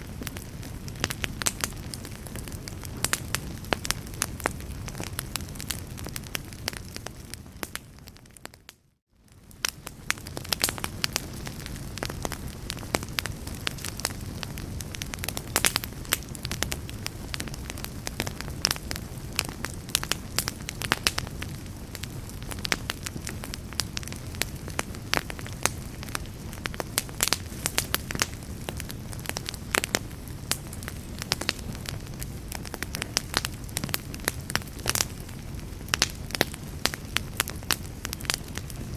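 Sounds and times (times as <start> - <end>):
wood fire crackling and popping: 0.0 - 38.9.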